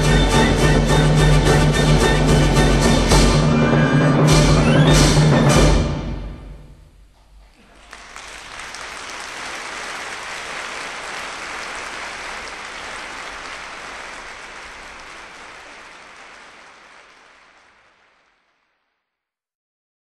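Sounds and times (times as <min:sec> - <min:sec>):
applause-like noise: 0:07.2 - 0:19.2.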